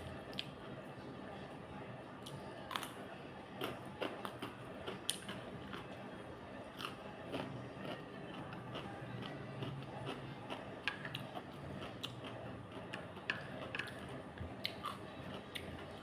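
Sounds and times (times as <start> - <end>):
person chewing food: 3.6 - 6.0, 6.8 - 16.0.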